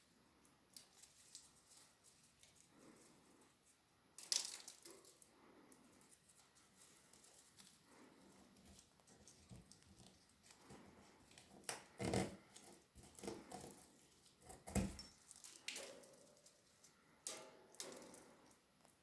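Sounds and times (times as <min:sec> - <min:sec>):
soft rustling: 0:00.8 - 0:03.9, 0:04.8 - 0:11.6.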